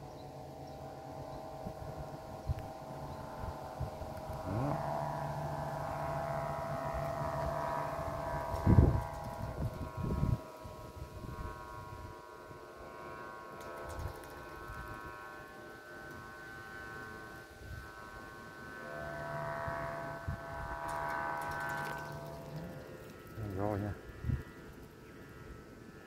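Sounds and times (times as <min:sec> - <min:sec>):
humming chord of high tones: 0:00.0 - 0:26.0
wind buffeting microphone: 0:06.9 - 0:12.2, 0:19.6 - 0:24.8.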